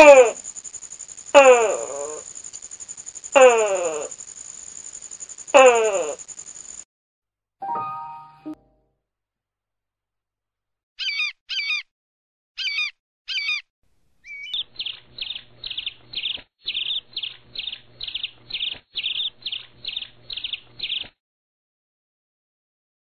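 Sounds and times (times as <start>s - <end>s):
bird warbling calls: 12.6s - 13.6s.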